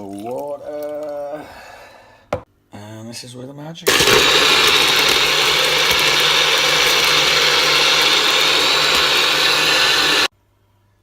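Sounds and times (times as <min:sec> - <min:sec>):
electric blender running: 0:03.9 - 0:10.3.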